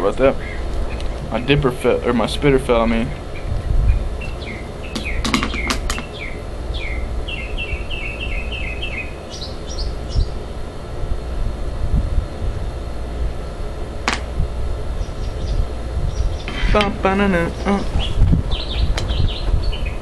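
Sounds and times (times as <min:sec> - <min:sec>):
low background rumble: 0:00.0 - 0:20.0
songbird singing whistled notes: 0:03.4 - 0:10.4, 0:17.6 - 0:20.0.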